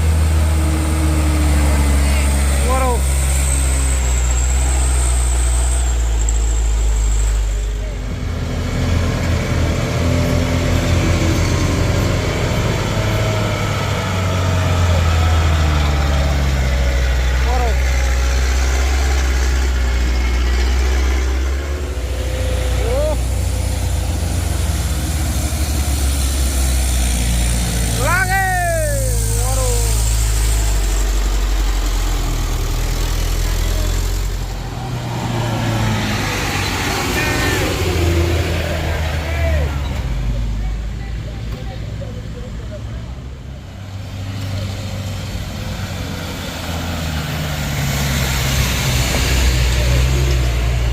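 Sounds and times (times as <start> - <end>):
heavy vehicle engine running: 0.0 - 50.9.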